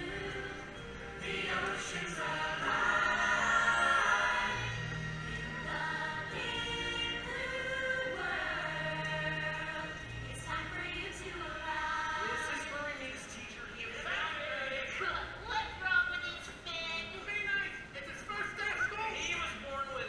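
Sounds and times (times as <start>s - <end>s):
choir singing long notes: 0.0s - 12.5s.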